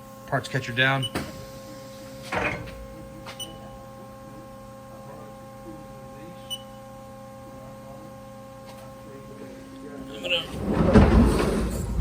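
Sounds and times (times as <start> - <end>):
machine humming: 0.0 - 12.0
short high beeps: 6.4 - 6.8.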